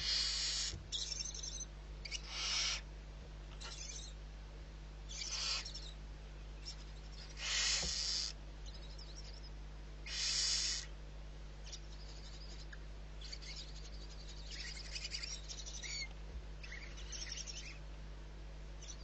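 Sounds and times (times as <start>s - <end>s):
owl hissing screech: 0.0s - 2.8s, 5.1s - 5.9s, 7.3s - 8.4s, 10.0s - 10.9s
faint high chirps and clicks: 0.4s - 2.8s, 3.5s - 4.2s, 5.1s - 6.0s, 6.6s - 10.9s, 11.6s - 17.8s.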